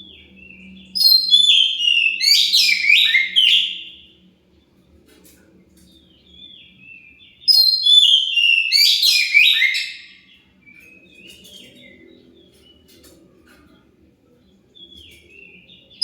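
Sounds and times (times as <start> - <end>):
bird whistling song: 0.1 - 4.1, 6.2 - 12.1.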